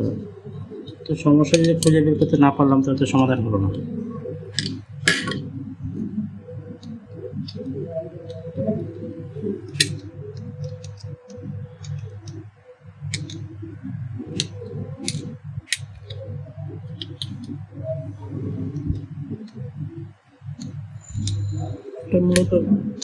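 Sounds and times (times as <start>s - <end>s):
low background noise: 0.0s - 23.0s
clicks and metallic taps: 13.1s - 13.4s.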